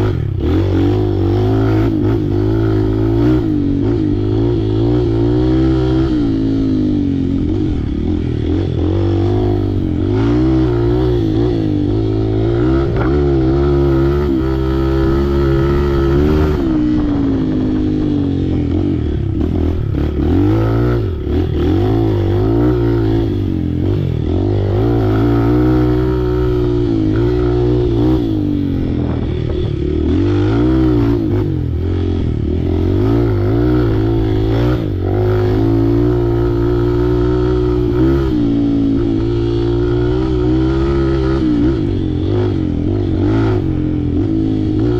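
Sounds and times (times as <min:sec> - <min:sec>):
off-road vehicle engine revving: 0:00.0 - 0:44.9.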